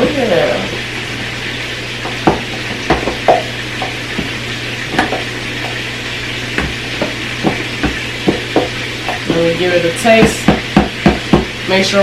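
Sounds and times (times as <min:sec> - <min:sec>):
meat sizzling in a pan: 0:00.0 - 0:12.0
utensil knocking cookware: 0:02.0 - 0:05.8, 0:06.6 - 0:11.6.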